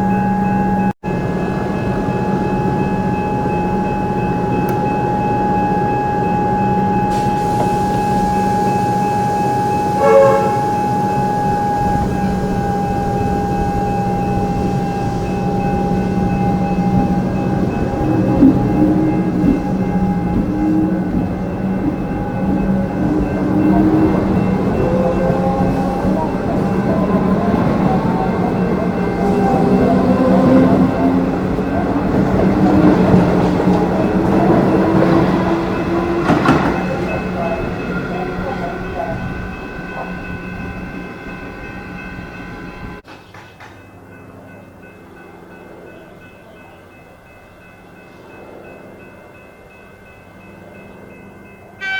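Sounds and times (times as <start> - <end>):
electric train whine and hum: 0.0 - 51.9
train horn toot: 2.0 - 39.2.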